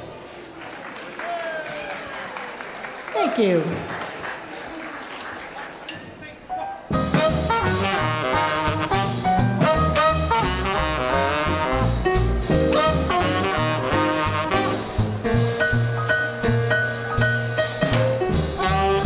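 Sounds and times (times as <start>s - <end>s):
piano: 6.4s - 19.0s
drums keeping a beat: 6.9s - 19.0s
saxophone and trumpet melody: 7.0s - 15.4s, 18.2s - 19.0s.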